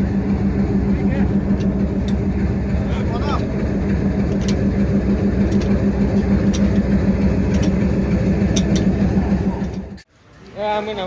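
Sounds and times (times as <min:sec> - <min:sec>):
locomotive engine droning: 0:00.0 - 0:10.2.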